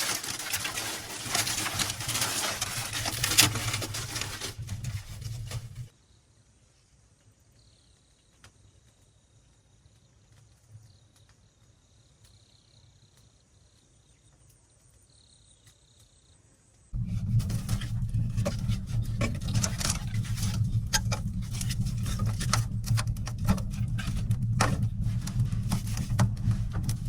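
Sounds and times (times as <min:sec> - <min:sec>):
loud noise with low hum: 0:17.0 - 0:27.0.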